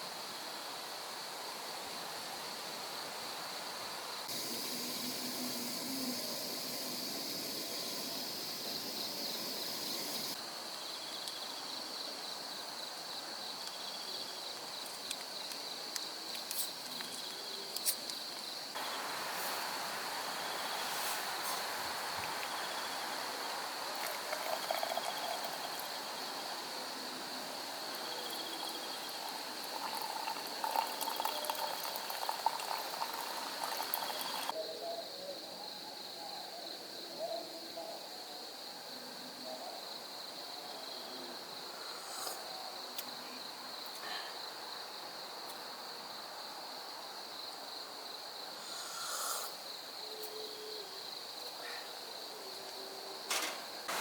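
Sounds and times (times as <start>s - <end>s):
insects chirring: 4.1s - 37.4s, 39.8s - 54.0s
broad hiss: 4.2s - 10.4s, 18.7s - 34.5s, 41.7s - 42.5s, 48.5s - 49.8s.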